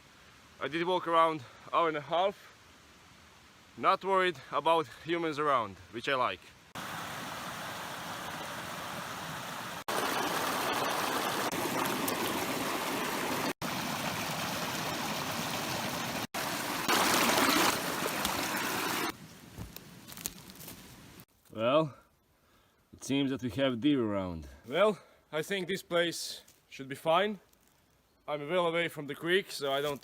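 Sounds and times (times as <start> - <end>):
creek water running: 6.7 - 19.2.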